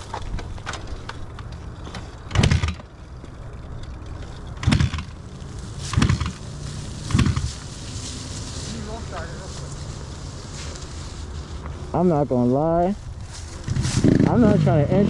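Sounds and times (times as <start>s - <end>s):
steady low hum: 0.0s - 15.0s
motorcycle engine kick start bursts: 2.3s - 2.9s, 4.6s - 5.2s, 5.8s - 6.4s.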